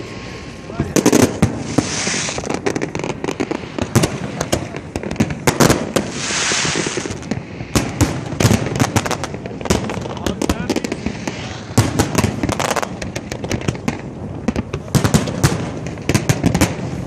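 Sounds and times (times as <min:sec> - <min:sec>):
fireworks bangs and crackles: 0:00.0 - 0:17.0
hissing bursting shells: 0:01.0 - 0:14.0.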